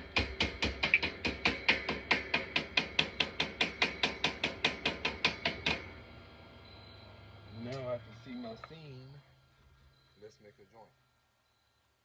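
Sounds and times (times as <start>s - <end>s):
chipping hammer tapping metal: 0.1s - 5.9s.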